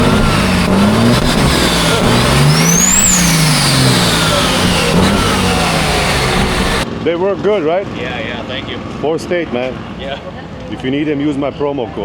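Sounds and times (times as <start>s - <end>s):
vehicle engine accelerating with whine: 0.0s - 7.1s.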